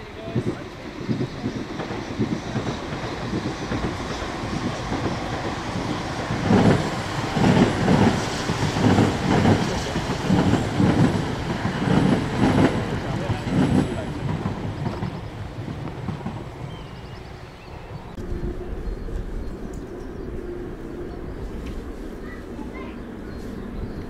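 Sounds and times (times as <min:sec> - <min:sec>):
train wheels clattering over rails: 0:00.0 - 0:17.2.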